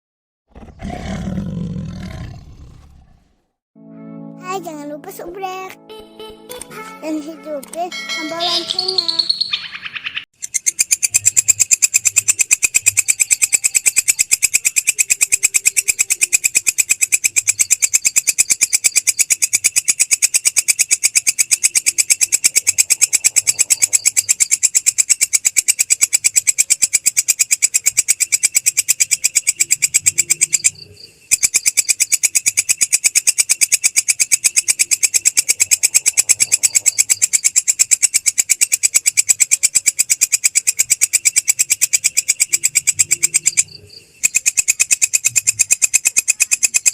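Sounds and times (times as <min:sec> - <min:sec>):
grasshopper stridulating: 0:10.4 - 0:46.9.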